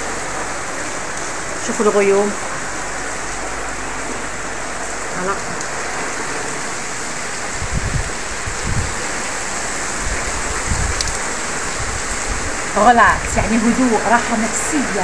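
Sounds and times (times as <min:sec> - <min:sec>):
heavy rain: 0:00.0 - 0:15.0
low rumbles: 0:00.0 - 0:15.0.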